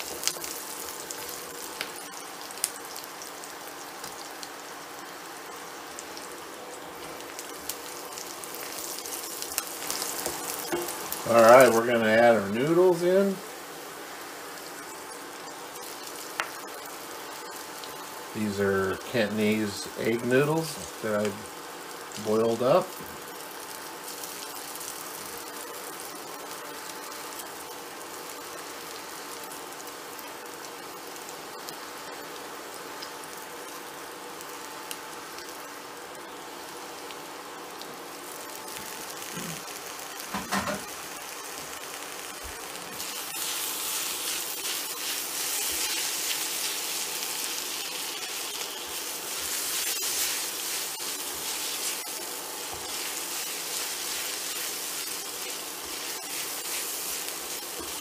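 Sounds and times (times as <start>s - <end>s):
noodles sizzling in a wok: 0.0s - 58.0s.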